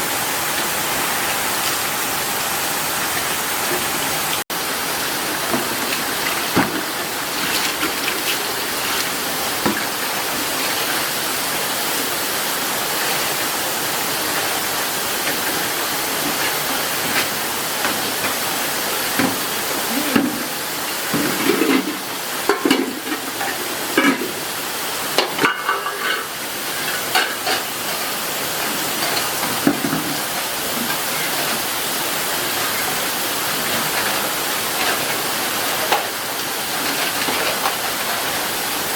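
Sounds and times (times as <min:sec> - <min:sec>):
rain falling: 0:00.0 - 0:38.9
knocks and splashes: 0:05.2 - 0:11.5, 0:15.2 - 0:24.5, 0:28.7 - 0:31.6.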